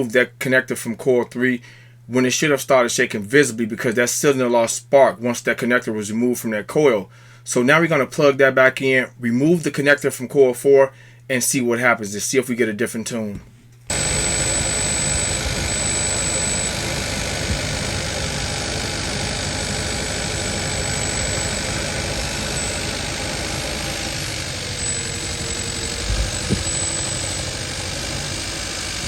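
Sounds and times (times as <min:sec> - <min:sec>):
car engine idling: 0:13.9 - 0:29.0.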